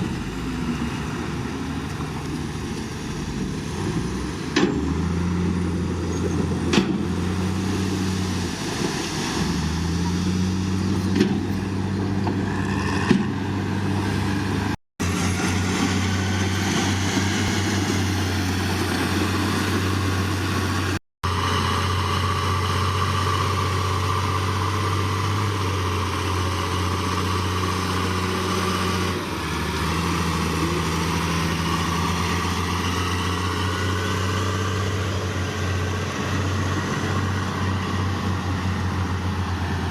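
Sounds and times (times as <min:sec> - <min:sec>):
heavy diesel engine running: 0:09.6 - 0:39.9.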